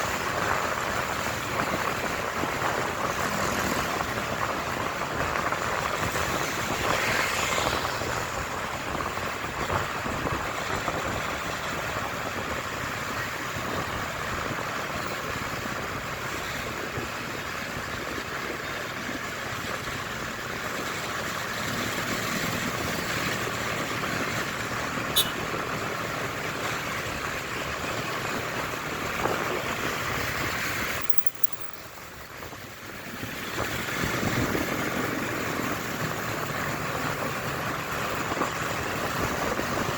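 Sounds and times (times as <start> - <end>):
wind noise on microphone: 0.0 - 19.8, 27.1 - 31.3
motorcycle engine: 24.5 - 26.5.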